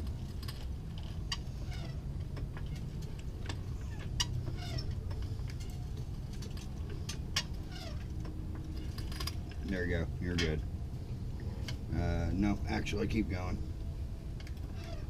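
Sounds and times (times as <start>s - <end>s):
steady low hum: 0.0s - 15.0s
light clicks and metal ticks: 2.1s - 10.7s, 13.0s - 15.0s.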